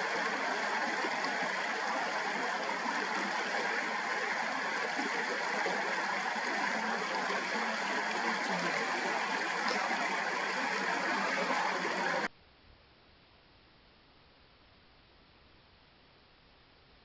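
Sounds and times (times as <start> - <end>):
stream flowing: 0.0 - 12.3.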